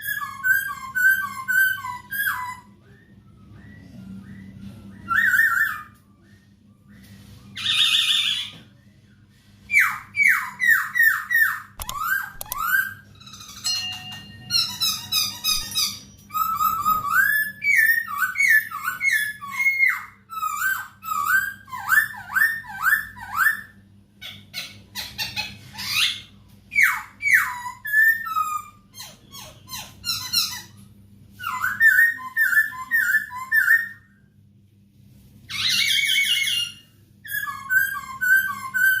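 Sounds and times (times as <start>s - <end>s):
bird singing whistled phrases: 0.0s - 8.6s.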